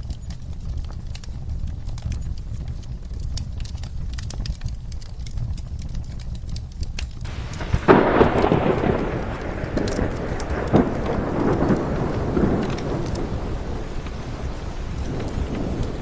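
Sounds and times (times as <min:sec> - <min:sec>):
fireplace crackling with pops: 0:00.0 - 0:16.0
low rumble: 0:00.0 - 0:16.0
rush of rain: 0:00.0 - 0:16.0
thunder clap: 0:07.2 - 0:16.0.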